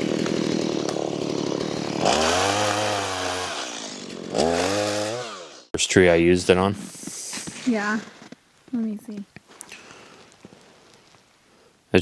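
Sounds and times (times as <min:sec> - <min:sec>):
chainsaw cutting wood: 0:00.0 - 0:05.7.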